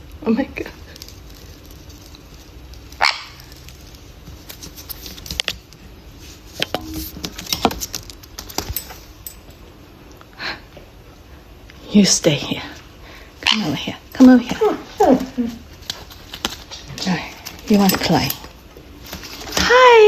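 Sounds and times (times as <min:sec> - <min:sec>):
parrot call: 0:03.0 - 0:03.4.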